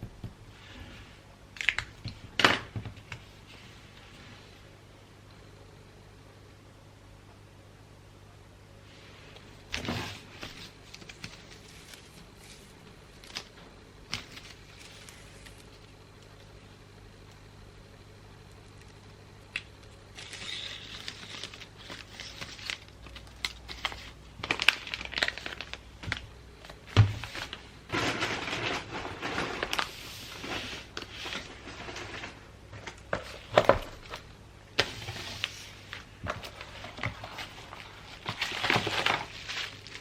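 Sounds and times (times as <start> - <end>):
wrapping paper crinkling: 10.0 - 16.4, 19.8 - 40.0.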